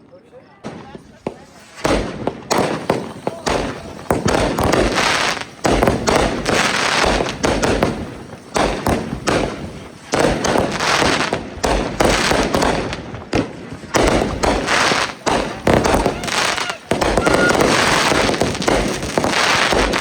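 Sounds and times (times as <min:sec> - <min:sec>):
fireworks banging: 0:00.4 - 0:20.0.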